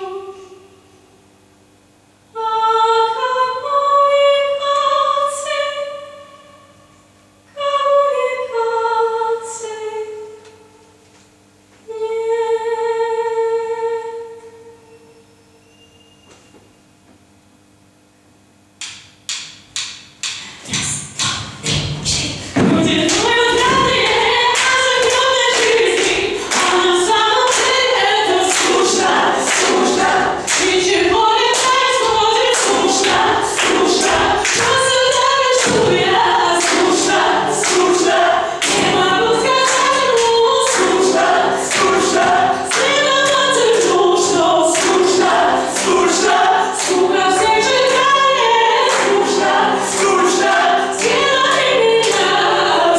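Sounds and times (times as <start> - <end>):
sharp knocking beat: 18.8 - 43.4
group of voices singing: 20.7 - 52.9.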